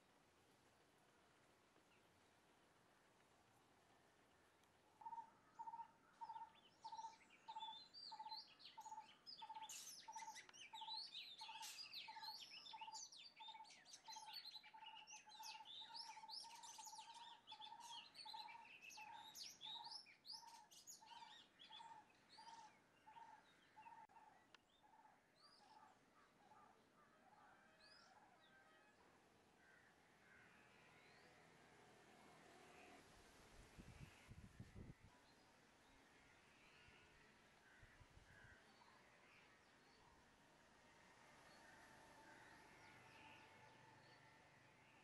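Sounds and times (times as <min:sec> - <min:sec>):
birds chirping and twittering: 0:04.6 - 0:31.7, 0:41.4 - 0:45.0.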